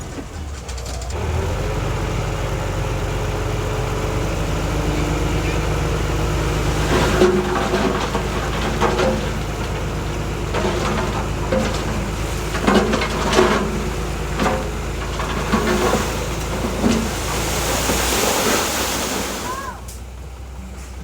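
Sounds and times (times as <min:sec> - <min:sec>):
heavy diesel machine running: 0:00.0 - 0:21.0
rock and metal clattering: 0:06.8 - 0:19.3.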